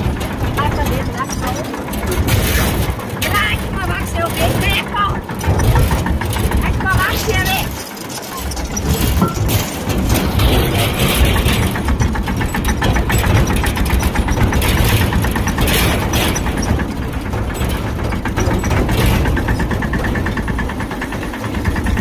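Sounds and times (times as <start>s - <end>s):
tractor engine chugging: 0.0s - 22.0s.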